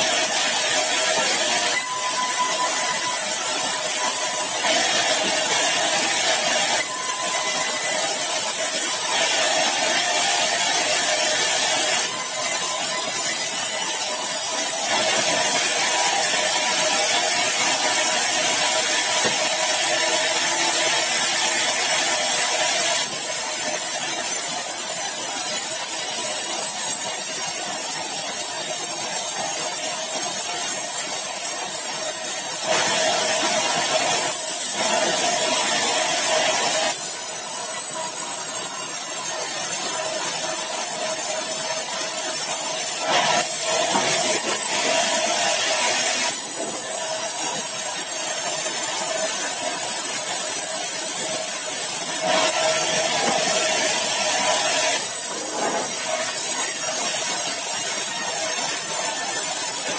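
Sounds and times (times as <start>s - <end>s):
sawmill saw cutting log: 0.0s - 59.9s.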